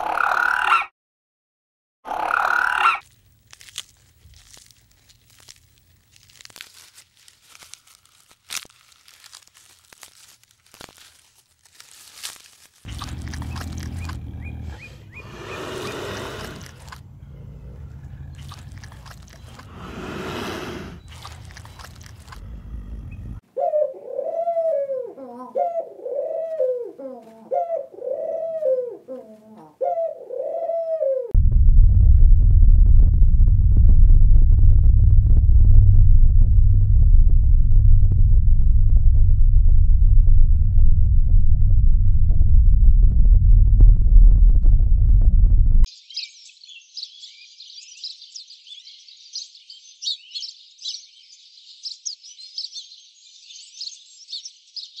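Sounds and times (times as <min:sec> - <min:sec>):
elephant seal calling: 0:02.1 - 0:03.0
clicks and crunches of feeding: 0:03.0 - 0:14.4, 0:16.4 - 0:17.0, 0:18.4 - 0:19.7, 0:21.0 - 0:22.5
low rumble: 0:12.9 - 0:15.2, 0:21.2 - 0:23.4, 0:31.4 - 0:45.9
pigeons cooing: 0:12.9 - 0:21.1, 0:22.4 - 0:31.3.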